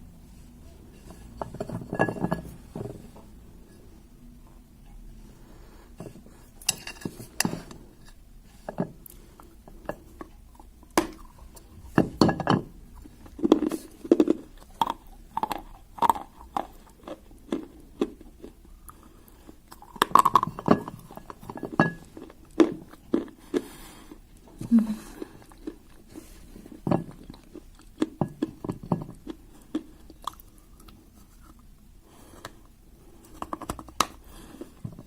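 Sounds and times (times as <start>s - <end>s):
clay pieces clattering on a plate: 1.3s - 3.0s, 6.6s - 7.8s.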